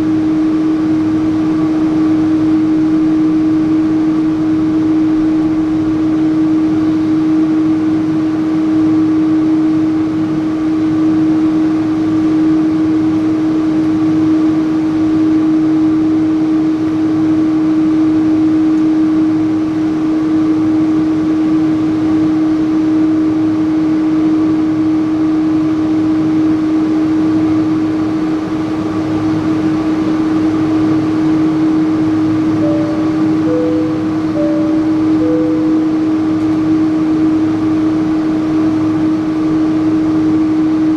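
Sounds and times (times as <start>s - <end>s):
constant low hum: 30.6s - 37.1s.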